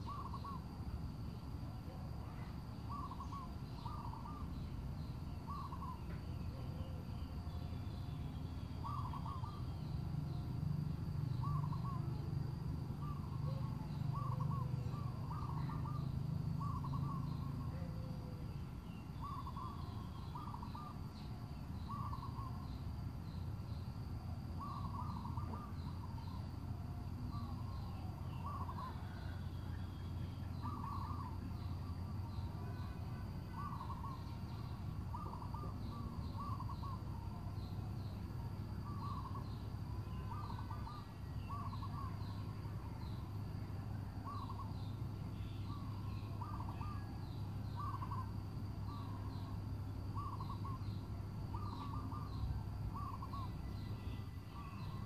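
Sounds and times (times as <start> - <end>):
birds calling: 0.0 - 0.7, 2.2 - 10.6, 11.2 - 23.8, 24.5 - 55.0
steady low hum: 0.0 - 55.0.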